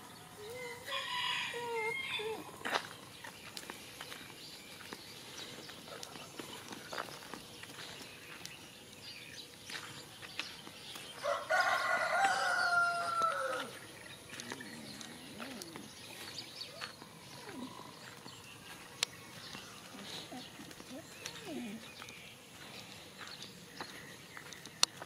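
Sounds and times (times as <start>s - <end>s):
footsteps on a dirt road: 0.1s - 25.0s
rooster crowing: 0.4s - 2.5s, 11.2s - 13.8s.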